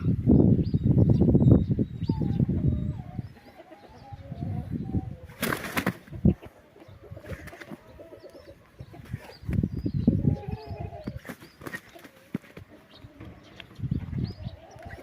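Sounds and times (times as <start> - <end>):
birds calling: 0.0 - 15.0
wings fluttering: 5.2 - 6.4, 7.1 - 9.7, 10.8 - 12.8.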